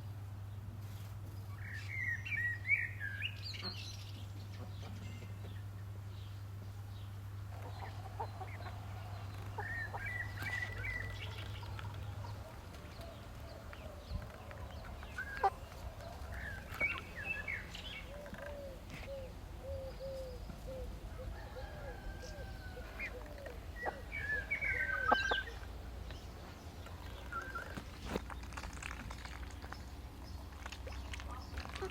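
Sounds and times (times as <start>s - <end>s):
hens clucking: 7.5s - 28.2s
bird chirps: 14.1s - 28.2s.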